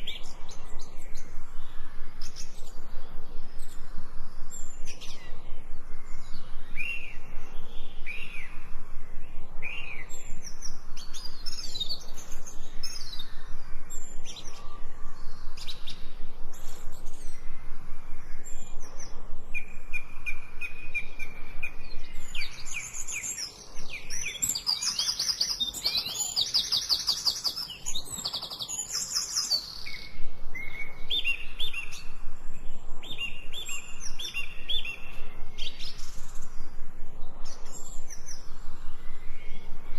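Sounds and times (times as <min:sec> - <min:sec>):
songbirds chirping and singing: 0:00.0 - 0:39.9
fast bird trill: 0:24.4 - 0:29.8.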